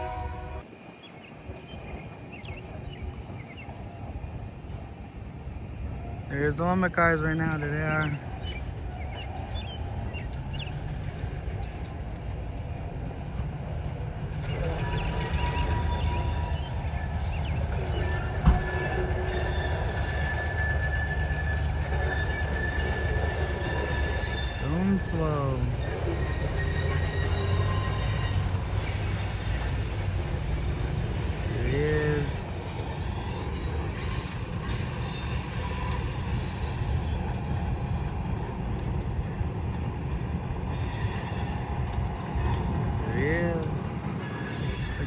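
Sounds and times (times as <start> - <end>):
train wheels rumbling on rails: 0.0 - 45.0
high wheel squeal: 14.5 - 38.4, 40.7 - 42.7, 44.1 - 45.0
freight car wheels rumbling on rails: 17.0 - 19.2.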